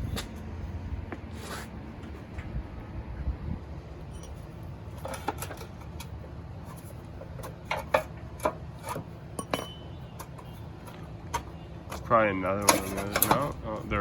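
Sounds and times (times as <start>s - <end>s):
wrench clinking on engine parts: 4.0s - 14.0s.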